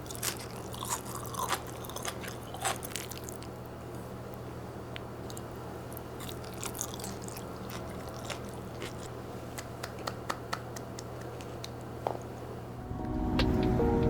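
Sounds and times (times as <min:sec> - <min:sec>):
person chewing: 0:00.0 - 0:03.7, 0:05.2 - 0:09.8
low hum: 0:12.5 - 0:14.0.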